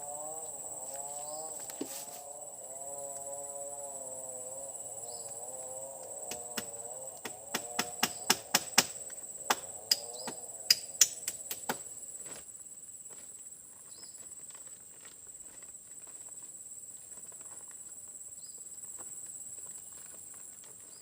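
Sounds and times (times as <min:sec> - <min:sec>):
high-pitched insect drone: 0:00.0 - 0:12.4
sharp irregular clicks: 0:10.7 - 0:11.8.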